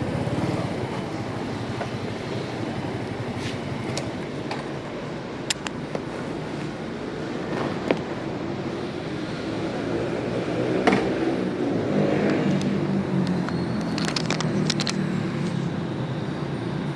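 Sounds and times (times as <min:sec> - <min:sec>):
motorcycle engine droning: 0:00.0 - 0:05.2, 0:08.8 - 0:16.9
sharp clicks: 0:12.3 - 0:15.6.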